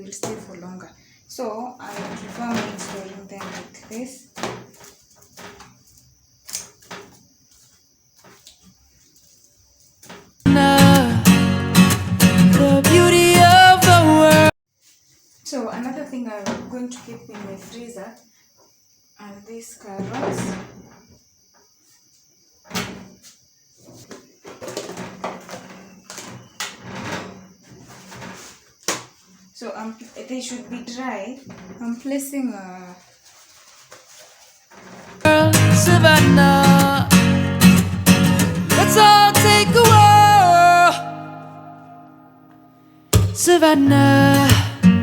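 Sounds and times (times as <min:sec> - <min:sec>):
taps knocks and rustling: 0:01.9 - 0:08.7
sharp knocks: 0:43.1 - 0:43.5.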